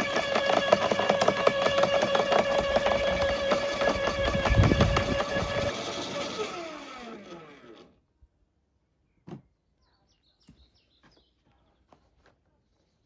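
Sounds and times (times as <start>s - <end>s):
wood chipper motor whine winding down: 0.0s - 8.0s.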